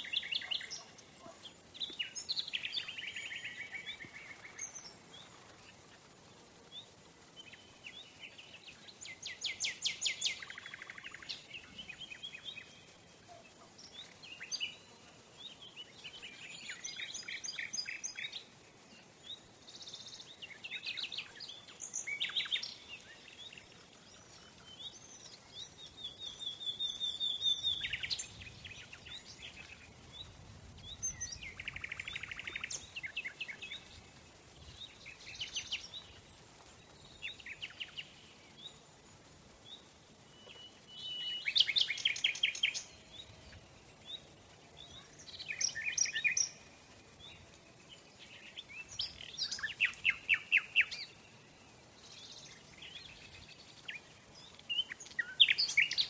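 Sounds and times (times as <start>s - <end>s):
faint background hiss: 0.0s - 56.0s
wild birds singing trills: 0.0s - 56.0s.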